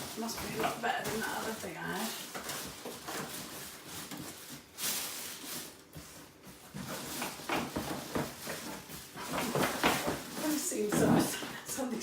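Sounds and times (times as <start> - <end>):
cardboard scraping and rustling: 0.0 - 11.5
knocks and bumps: 6.8 - 11.5.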